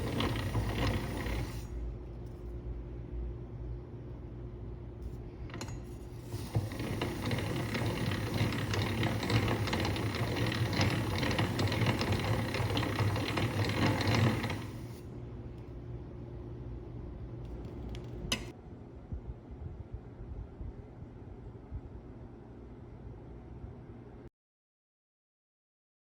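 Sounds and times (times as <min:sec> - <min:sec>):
hand-cranked gears clicking: 0:00.0 - 0:01.6, 0:05.5 - 0:15.0.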